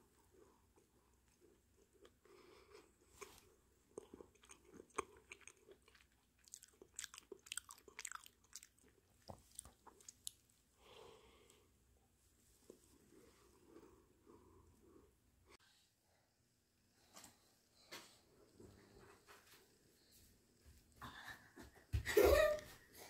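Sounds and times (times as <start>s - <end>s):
chewing soft bread: 0.0s - 11.6s.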